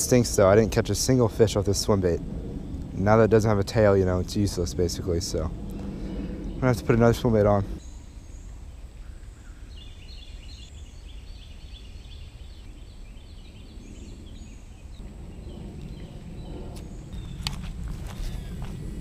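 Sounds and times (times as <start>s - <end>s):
low steady rumble: 0.0s - 9.0s, 12.2s - 19.0s
bird chirping: 5.7s - 18.7s.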